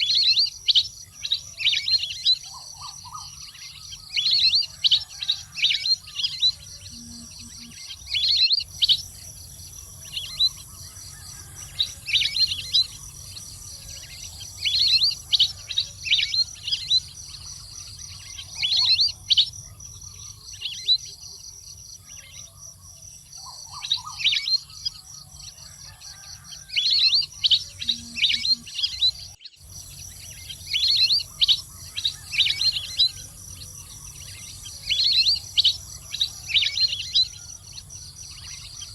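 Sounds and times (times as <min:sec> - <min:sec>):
duck chirping calls: 0:01.8 - 0:04.6, 0:29.8 - 0:38.9
high-pitched drone: 0:06.8 - 0:07.9.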